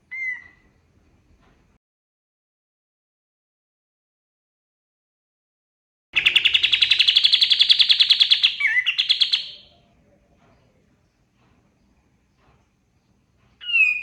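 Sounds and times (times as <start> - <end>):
bird singing rapid high notes: 6.2 - 9.7.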